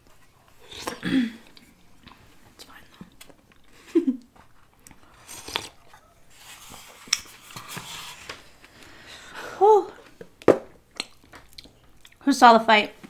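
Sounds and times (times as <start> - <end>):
chewing and biting: 4.8 - 6.0.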